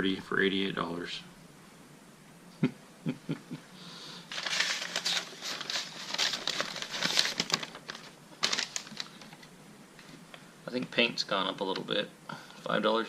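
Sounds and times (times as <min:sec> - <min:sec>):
paper crinkling and rustling: 0:04.3 - 0:10.2.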